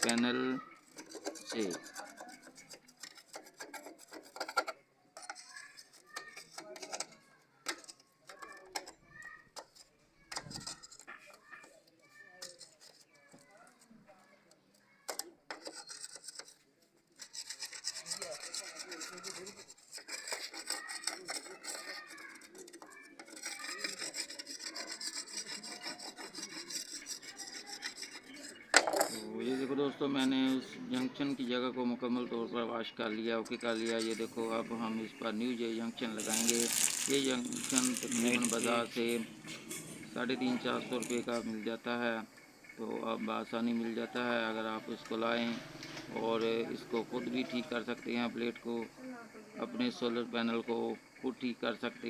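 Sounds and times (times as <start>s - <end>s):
rasping scrubbing strokes: 0.7s - 7.2s, 17.2s - 29.8s, 33.5s - 41.5s.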